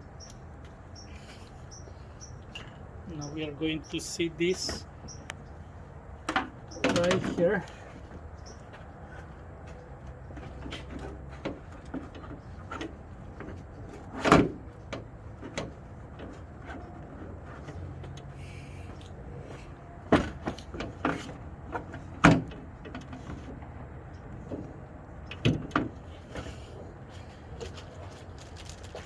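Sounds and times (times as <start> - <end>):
hardware clicks and knocks: 6.2 - 8.9.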